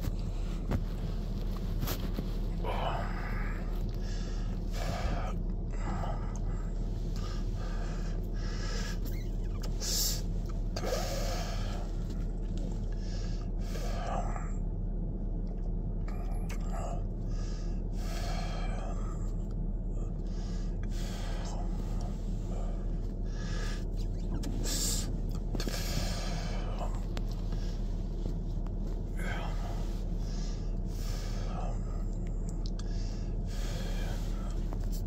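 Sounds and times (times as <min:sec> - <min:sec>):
man breathing: 0:00.0 - 0:14.7, 0:16.5 - 0:35.0
car engine humming: 0:00.0 - 0:35.0.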